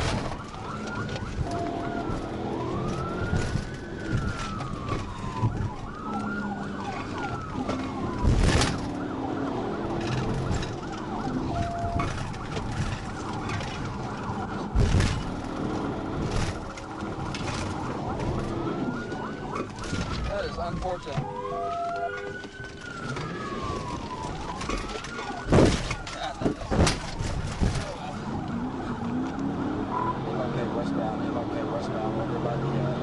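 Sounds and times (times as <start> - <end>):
car road noise: 0.0 - 33.0
police siren wailing and yelping: 0.0 - 33.0
loud thumps: 25.4 - 27.9.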